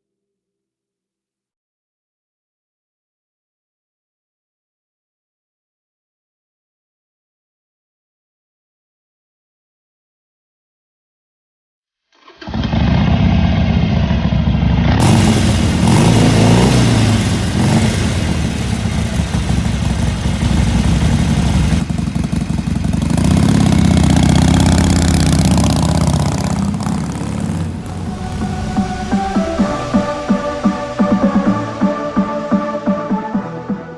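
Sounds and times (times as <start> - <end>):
motorcycle engine running: 12.8 - 33.2.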